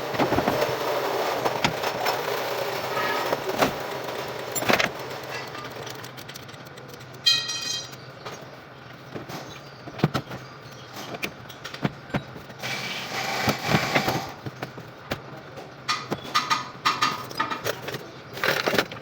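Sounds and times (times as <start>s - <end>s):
harsh metal scraping: 0.1s - 5.7s.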